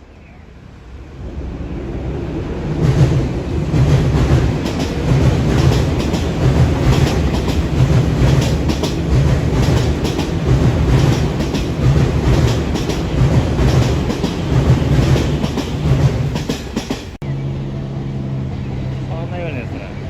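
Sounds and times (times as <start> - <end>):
train rumble: 0.0 - 20.0
wheels clacking over rail joints: 2.8 - 17.2.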